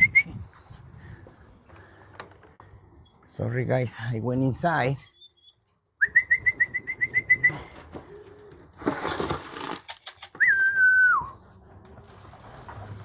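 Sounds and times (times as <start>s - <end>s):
person whistling: 0.0s - 0.4s, 6.0s - 7.7s, 10.4s - 11.4s.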